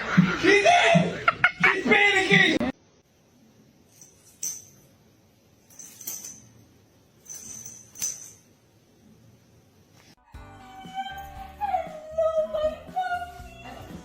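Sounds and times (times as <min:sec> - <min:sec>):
small bell jingling: 0:03.9 - 0:04.9, 0:05.6 - 0:08.6.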